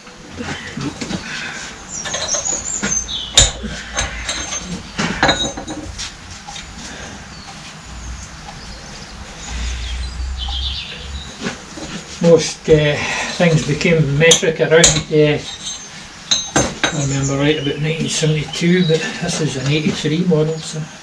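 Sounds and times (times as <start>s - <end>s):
birds chirping: 0.0s - 21.0s
sharp knocks: 2.0s - 6.1s
metal tools clinking: 2.0s - 6.7s, 14.3s - 18.6s.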